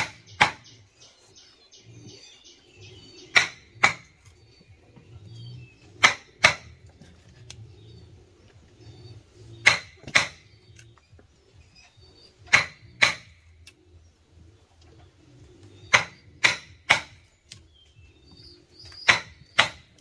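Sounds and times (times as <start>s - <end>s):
sharp knocks on wood: 0.0s - 0.7s, 9.6s - 10.4s, 15.9s - 17.2s, 19.0s - 19.8s.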